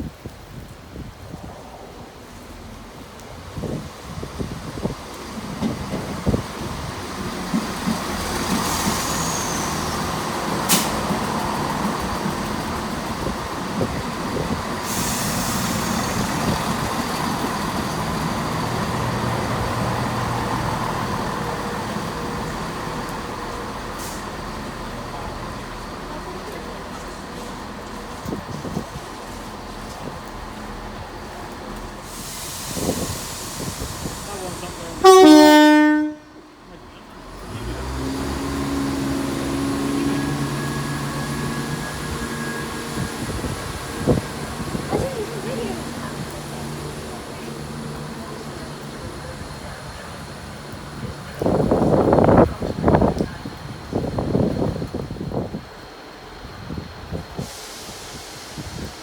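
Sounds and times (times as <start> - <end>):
train diesel engines running: 0.1 - 59.0
hiss of air: 4.0 - 25.0, 32.0 - 35.0, 38.6 - 59.0.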